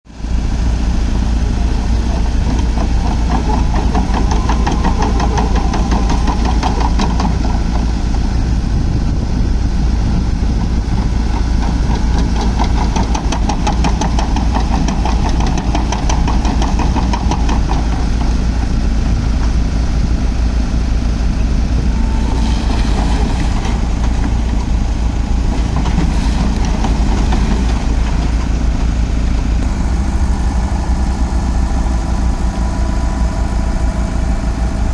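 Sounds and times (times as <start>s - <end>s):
diesel engine running: 0.1s - 34.9s
fast regular clatter: 10.6s - 19.6s.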